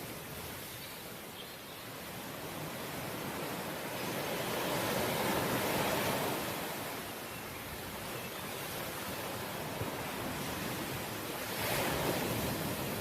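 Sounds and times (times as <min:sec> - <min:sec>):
ocean waves washing ashore: 0:00.0 - 0:13.0.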